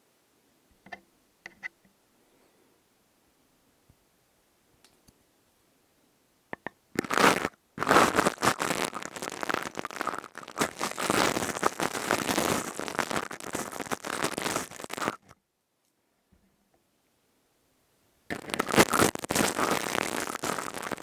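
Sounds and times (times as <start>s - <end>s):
crystal tube crunching and crackling: 7.0s - 15.2s, 18.3s - 21.0s.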